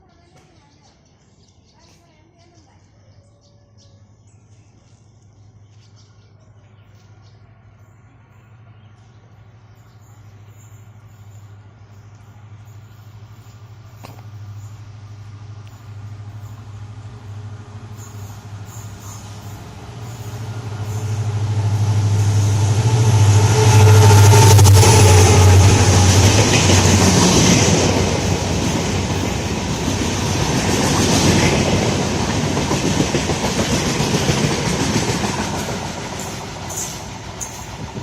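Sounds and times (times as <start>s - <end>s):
train passing at high speed: 9.3s - 38.0s.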